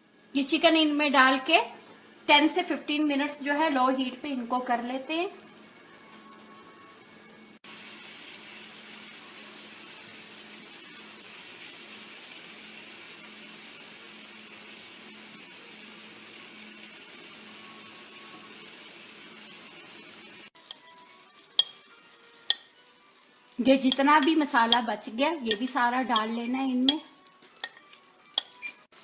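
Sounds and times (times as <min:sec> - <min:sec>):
chicken sizzling in a pan: 0:00.0 - 0:29.0
utensil clinking on a pan: 0:20.6 - 0:22.8, 0:23.8 - 0:28.9.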